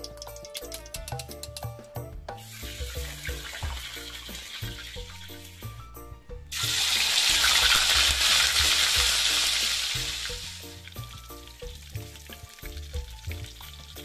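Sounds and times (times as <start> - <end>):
background music with steady beat: 0.0 - 14.0
tofu sizzling in hot oil: 2.4 - 5.8, 6.5 - 14.0.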